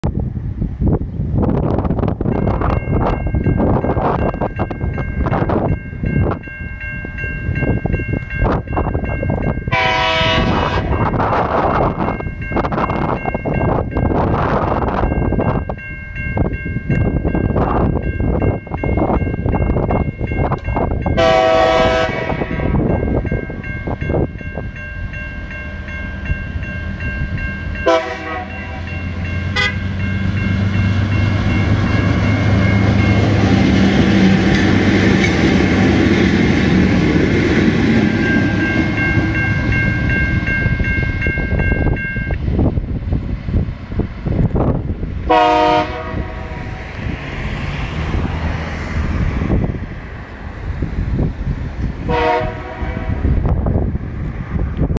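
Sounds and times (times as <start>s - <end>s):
locomotive engines rumbling: 0.0s - 54.9s
locomotive horn blasts: 9.7s - 11.4s, 21.2s - 22.8s, 27.8s - 30.0s, 45.3s - 46.6s, 52.1s - 53.3s.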